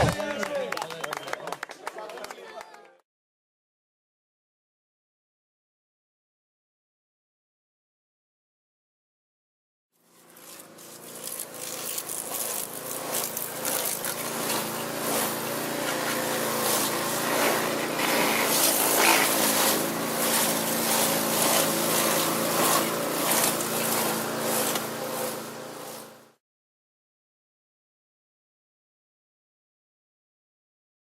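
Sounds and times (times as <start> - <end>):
motorcycle engines running: 10.0 - 26.4
clatter of track noise: 11.2 - 26.0.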